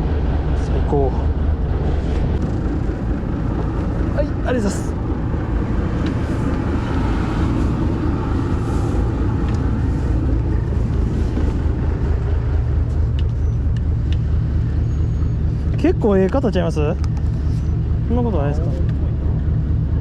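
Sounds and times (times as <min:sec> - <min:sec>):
boat engine rumble: 0:00.0 - 0:20.0.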